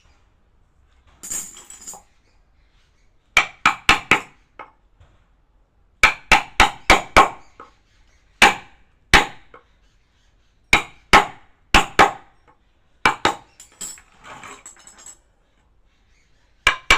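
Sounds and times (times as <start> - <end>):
mallet striking chisel into wood: 3.4 - 4.3, 6.0 - 7.7, 10.8 - 12.2, 13.1 - 13.4, 16.7 - 16.9.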